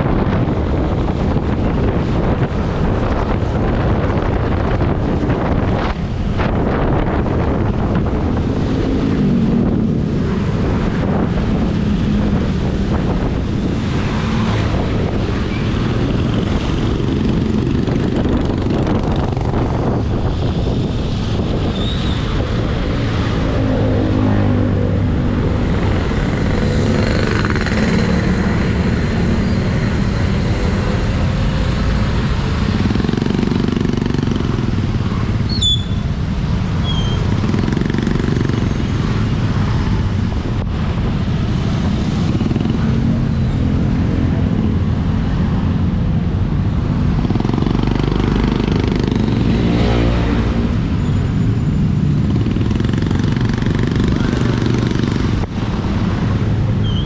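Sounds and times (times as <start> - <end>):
wind noise on microphone: 0.0 - 57.0
motorcycle engine running: 22.6 - 39.7, 42.0 - 55.5.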